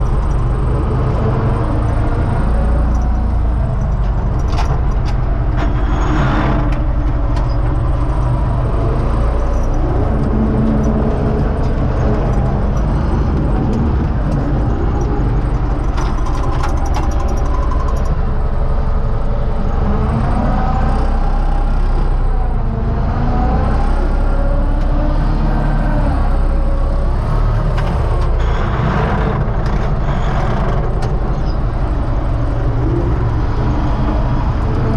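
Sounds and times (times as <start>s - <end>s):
rattles and knocks: 0.0s - 18.5s
tractor diesel engine running: 0.0s - 34.9s.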